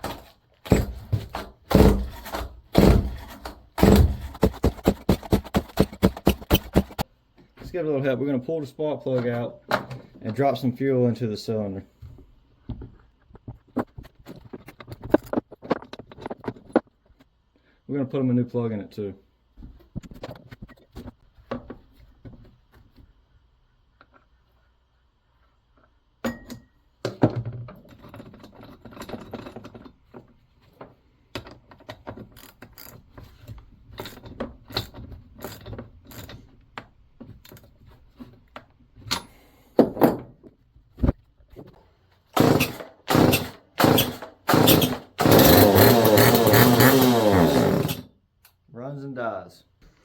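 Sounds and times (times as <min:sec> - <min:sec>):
chainsaw starter cord pulls: 0:00.0 - 0:07.0, 0:34.8 - 0:36.4, 0:42.4 - 0:48.1
tools clicking and knocking: 0:00.0 - 0:07.1, 0:26.2 - 0:37.8
chainsaw engine running: 0:42.4 - 0:48.1.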